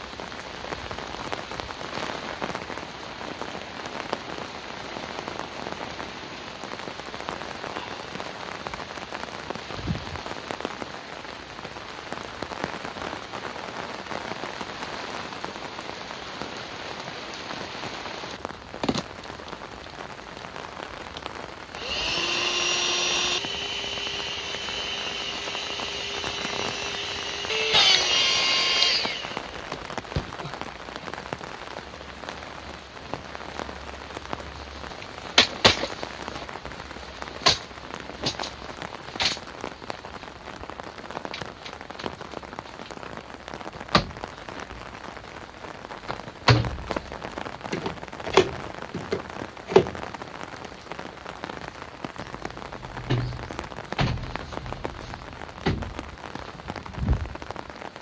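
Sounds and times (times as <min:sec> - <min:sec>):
steady rain: 0:00.0 - 0:58.0
small motor whining: 0:21.8 - 0:29.8.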